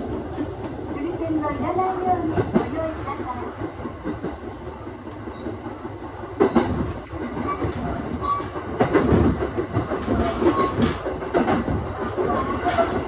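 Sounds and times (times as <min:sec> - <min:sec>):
rumble of wheels on rail: 0:00.0 - 0:13.0.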